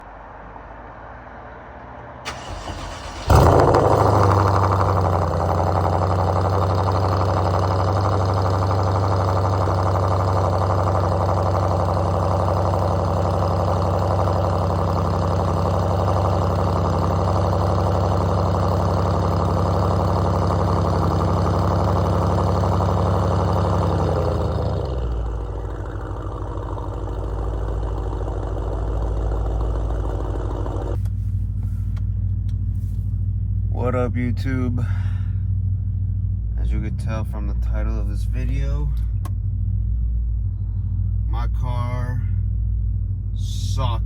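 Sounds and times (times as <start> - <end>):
car engine starting and idling: 2.0 - 44.0
starter motor engaging: 2.3 - 31.1.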